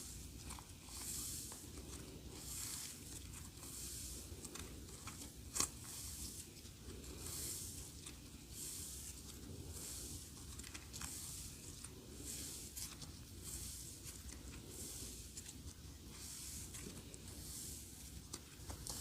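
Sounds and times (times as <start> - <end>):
small crackles: 9.2 - 17.3.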